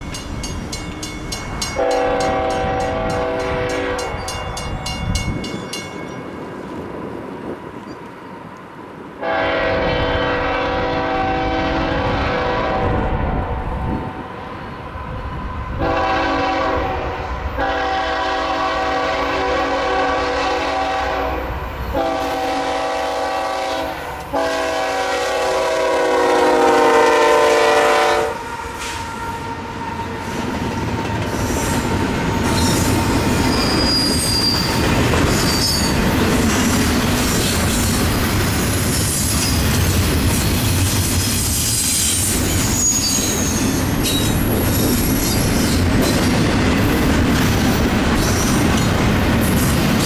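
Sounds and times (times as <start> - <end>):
train cars rumbling and clattering: 0.0 - 50.0
locomotive air horn blasts: 1.8 - 4.3, 9.2 - 13.6, 15.8 - 29.6
wheel squeal: 31.4 - 36.1, 41.2 - 46.2.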